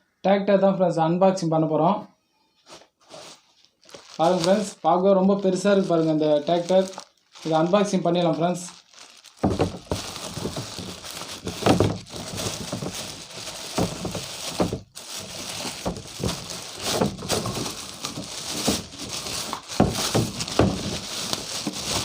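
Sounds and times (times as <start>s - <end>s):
packaging rustling and crinkling: 2.7s - 22.0s
handling knocks: 9.4s - 22.0s.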